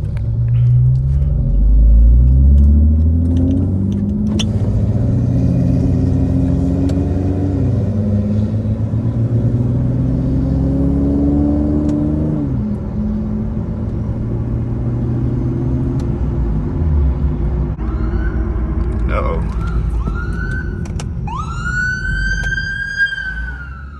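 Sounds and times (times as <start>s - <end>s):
car engine with loud exhaust: 0.0s - 23.9s.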